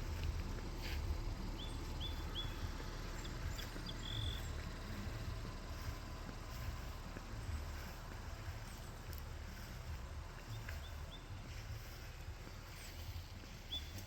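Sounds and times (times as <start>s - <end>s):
steady low rumble: 0.0s - 14.0s
small bird calling: 1.4s - 4.8s, 12.7s - 14.0s.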